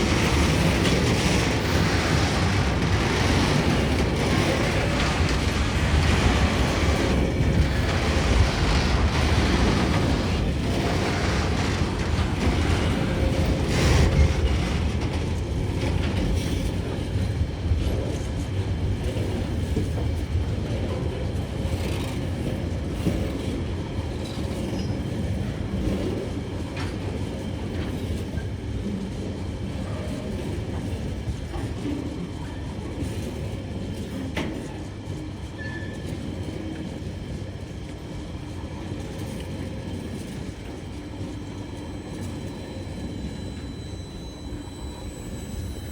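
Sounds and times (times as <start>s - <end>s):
wheel clacks: 0.0s - 15.4s
train wheels rumbling on rails: 0.0s - 45.9s.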